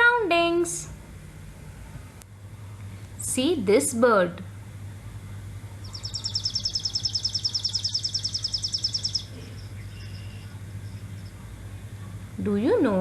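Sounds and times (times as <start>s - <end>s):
low steady hum: 0.0s - 13.0s
sparrow trilling: 5.8s - 11.4s.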